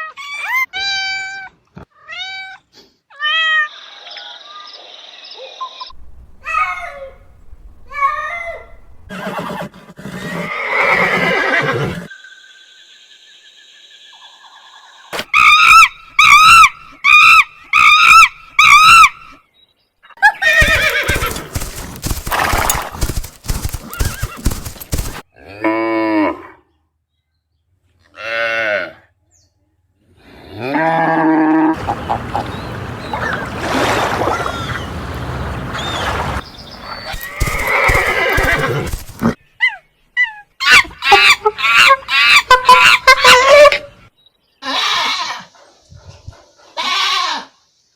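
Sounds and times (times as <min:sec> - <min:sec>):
horse whinnying: 0:09.1 - 0:12.1, 0:20.3 - 0:25.1, 0:31.8 - 0:39.2
animal calls: 0:20.3 - 0:25.2, 0:31.7 - 0:39.4.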